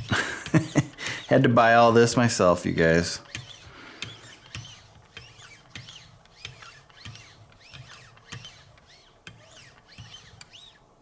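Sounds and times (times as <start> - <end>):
sharpening stroke squeaks: 0.0 - 2.1, 2.9 - 10.8
soft knocks of sharpener arms: 3.2 - 10.7.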